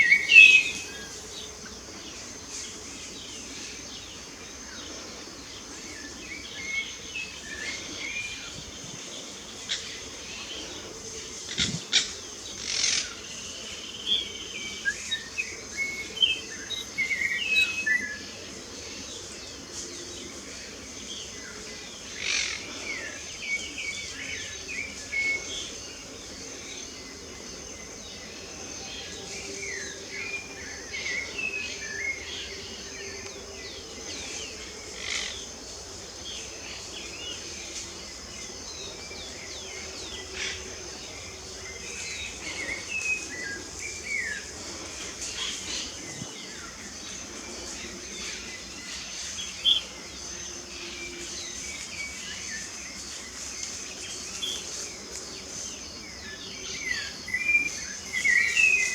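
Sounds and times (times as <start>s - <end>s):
birds chirping: 0.0s - 4.6s, 36.3s - 58.9s
high insect drone: 0.0s - 58.9s.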